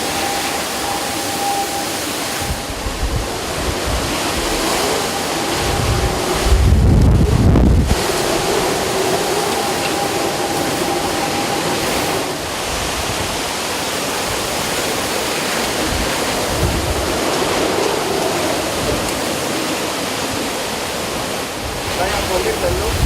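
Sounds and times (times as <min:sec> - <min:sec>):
faint whine: 0:00.0 - 0:12.8
low buffeting: 0:00.0 - 0:14.9
roar of hurricane wind and water: 0:00.0 - 0:23.0.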